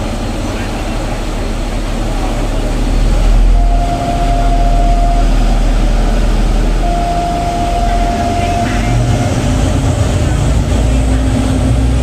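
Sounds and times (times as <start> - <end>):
ferry engine low rumble: 0.0 - 12.0
thin steady tone: 3.4 - 9.8.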